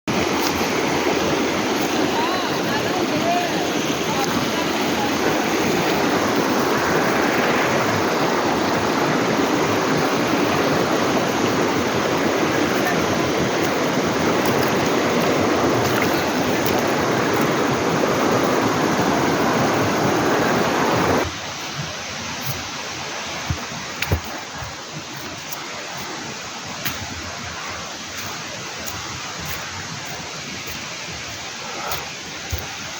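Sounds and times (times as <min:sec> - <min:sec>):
stream water rushing: 0:00.1 - 0:32.9.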